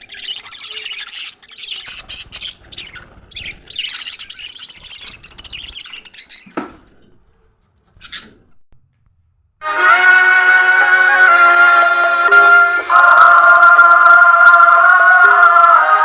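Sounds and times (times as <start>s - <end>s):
budgerigars chattering: 0.0s - 6.5s.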